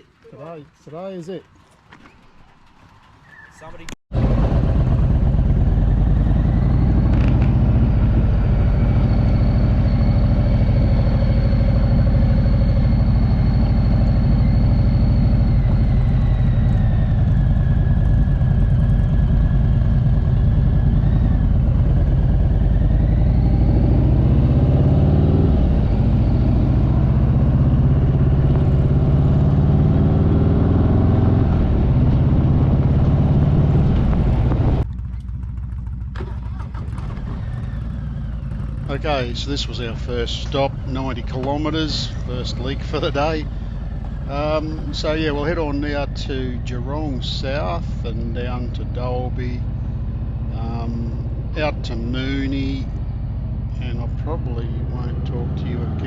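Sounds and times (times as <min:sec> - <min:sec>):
motorcycle engine: 0:00.0 - 0:56.0
wind noise: 0:31.4 - 0:34.8.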